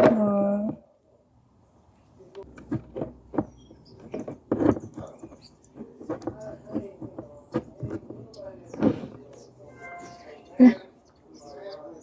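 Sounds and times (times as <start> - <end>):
plastic parts clicking and knocking: 2.4 - 9.4.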